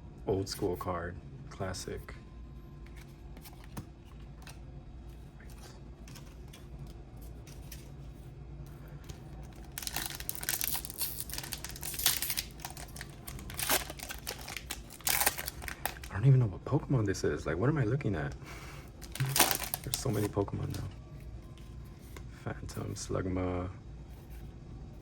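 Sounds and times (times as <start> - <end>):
foil wrapper crinkling and tearing: 9.4 - 16.2, 18.9 - 20.9.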